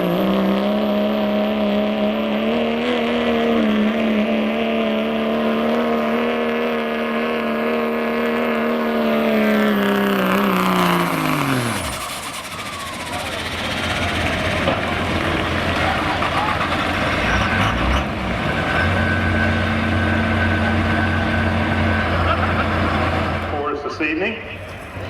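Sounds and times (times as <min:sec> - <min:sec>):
diesel truck engine at high revs: 0:00.0 - 0:25.0
turbo whistle: 0:11.6 - 0:13.9.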